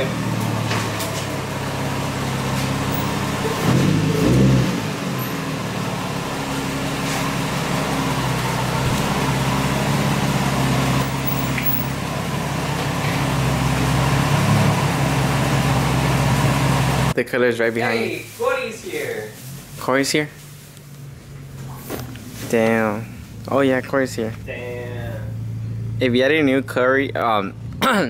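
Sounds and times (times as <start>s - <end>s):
car engine running at low speed: 0.0s - 17.2s, 19.4s - 28.0s.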